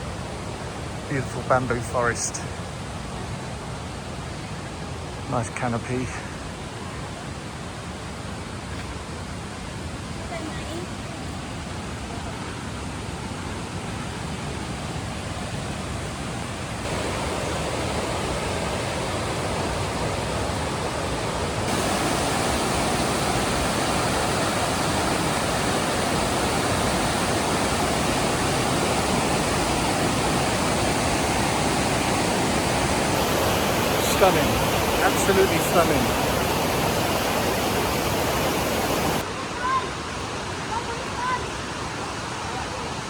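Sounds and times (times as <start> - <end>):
waterfall rushing: 16.6 - 42.8.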